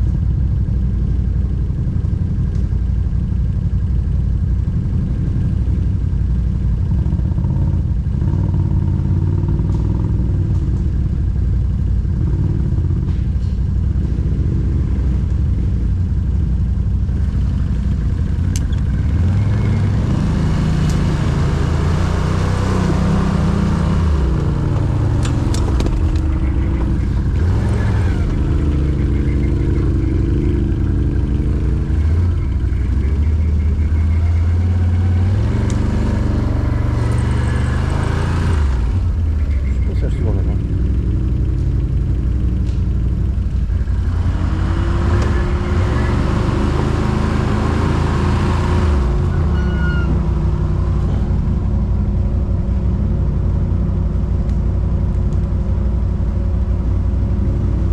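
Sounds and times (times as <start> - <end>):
atv engine revving: 6.8 - 10.9, 17.1 - 52.1.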